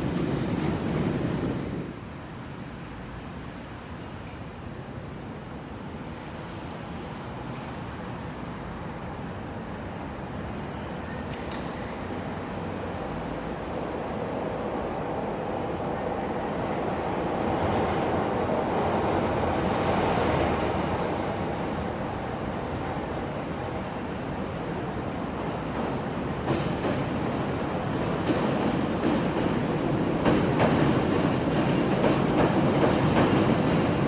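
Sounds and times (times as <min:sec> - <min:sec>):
train rumbling on elevated tracks: 0:00.0 - 0:34.0
train wheels clacking: 0:25.4 - 0:34.0.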